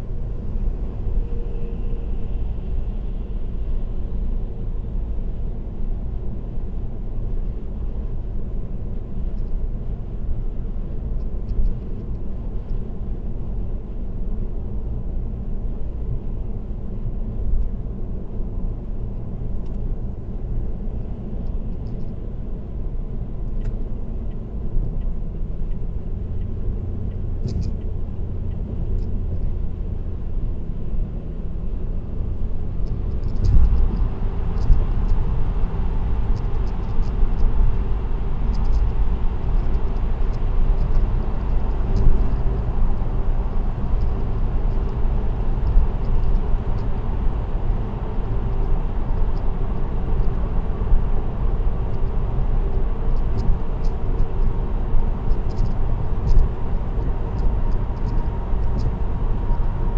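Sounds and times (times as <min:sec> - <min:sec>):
car road noise rumble: 0:00.0 - 0:59.9
faint ticks: 0:38.5 - 0:41.1.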